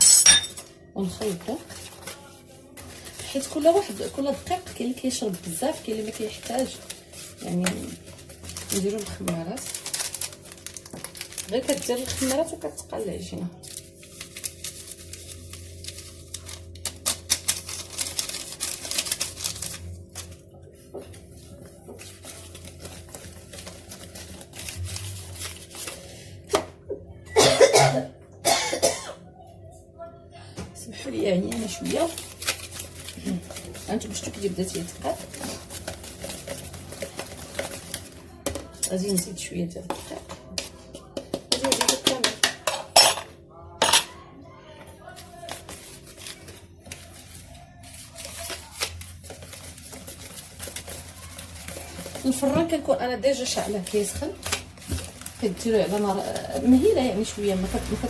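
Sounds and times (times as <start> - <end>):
batter mixed in a bowl: 0.0 - 27.2, 29.5 - 58.0
woman coughing: 27.3 - 29.3
utensil scraping a mixing bowl: 31.5 - 42.8, 45.5 - 58.0.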